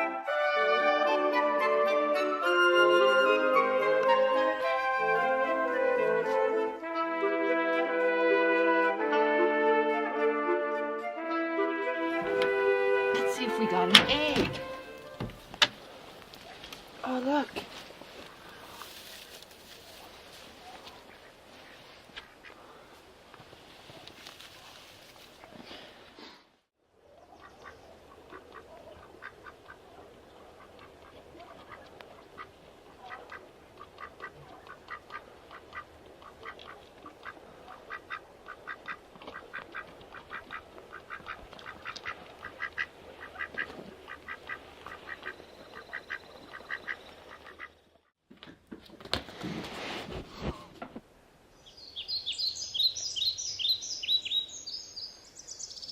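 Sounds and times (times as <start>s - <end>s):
ducks quacking: 27.3s - 47.8s.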